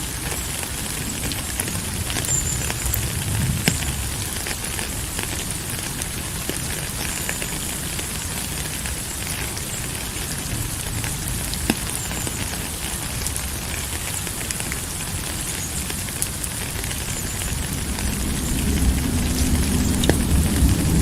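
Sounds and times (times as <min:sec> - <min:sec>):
rain pattering: 0:00.0 - 0:21.0
sharp drip clicks: 0:01.2 - 0:05.5, 0:11.0 - 0:16.2, 0:18.6 - 0:20.9.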